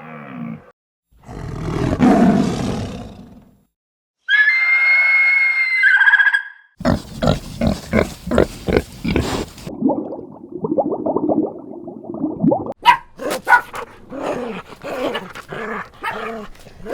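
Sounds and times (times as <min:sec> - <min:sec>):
animal roaring: 0:00.0 - 0:03.6, 0:13.8 - 0:16.9
high animal call: 0:04.2 - 0:06.6
animal grunts: 0:06.8 - 0:09.7, 0:13.2 - 0:16.9.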